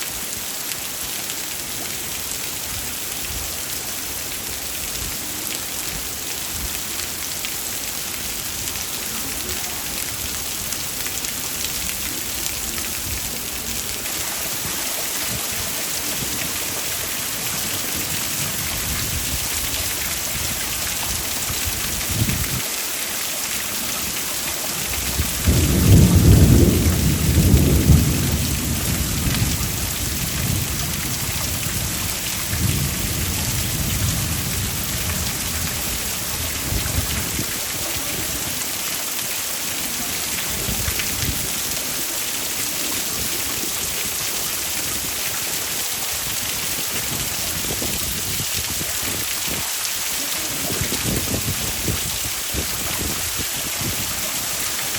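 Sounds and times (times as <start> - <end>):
heavy rain hissing: 0.0 - 54.9
thunder rumbling: 24.8 - 37.7.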